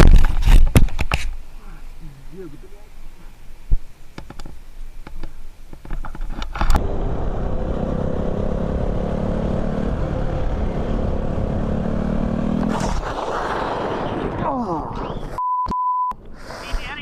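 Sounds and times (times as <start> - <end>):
road or wind noise: 0.0 - 1.5, 3.5 - 14.4
vehicle engine running: 6.8 - 12.7.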